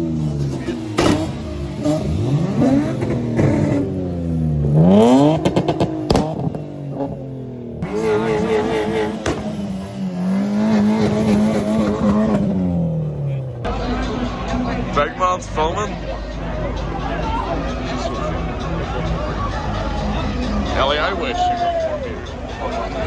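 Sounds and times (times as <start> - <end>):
car engines revving: 0.0 - 23.0
exhaust pops: 0.1 - 7.2, 7.8 - 13.7.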